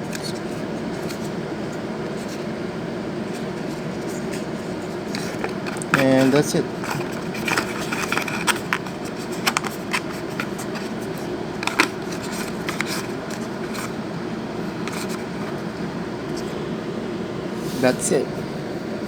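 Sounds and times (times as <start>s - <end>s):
steady background hum: 0.0s - 19.0s
packaging clicks and rustles: 3.4s - 14.0s, 14.6s - 15.7s.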